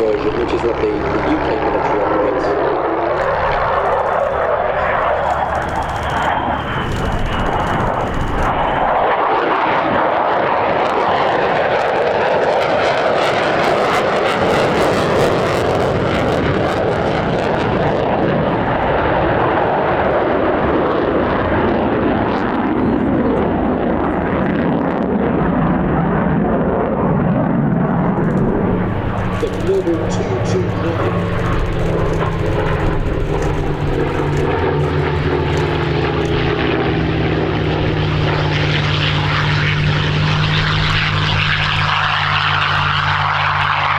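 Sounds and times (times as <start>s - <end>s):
aircraft engines roaring: 0.0s - 43.9s.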